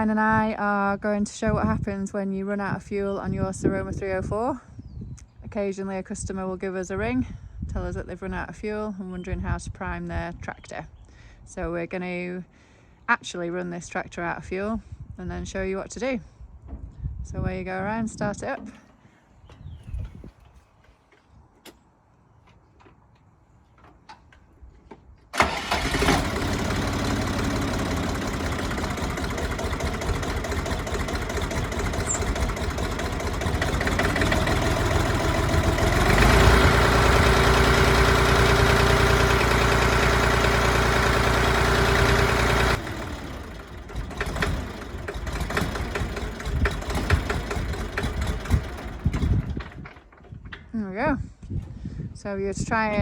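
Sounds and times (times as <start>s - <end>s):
tractor diesel engine running: 25.3s - 50.7s
diesel engine cranking: 25.3s - 50.8s.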